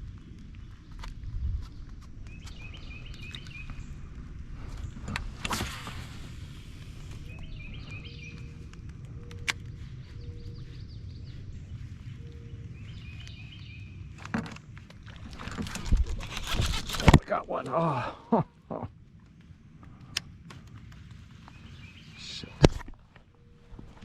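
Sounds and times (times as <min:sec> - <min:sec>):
steady low rumble: 0:00.0 - 0:24.0
bird chirping: 0:01.6 - 0:04.1, 0:07.0 - 0:14.1, 0:21.4 - 0:22.6.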